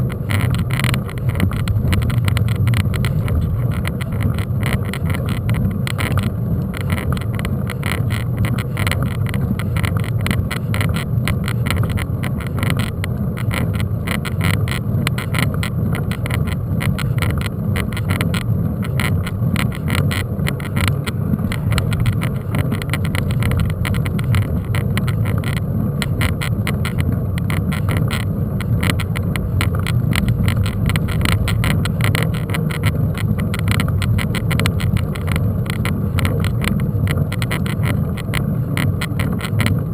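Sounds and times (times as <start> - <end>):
wind on microphone: 0.0 - 10.9
bike rattling: 0.0 - 39.9
road rumble: 0.0 - 39.9.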